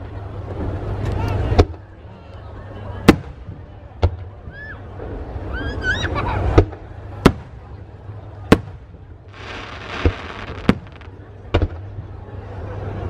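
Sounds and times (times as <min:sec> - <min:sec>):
fireworks bangs: 0:08.5 - 0:11.9
fireworks crackling: 0:08.5 - 0:11.9.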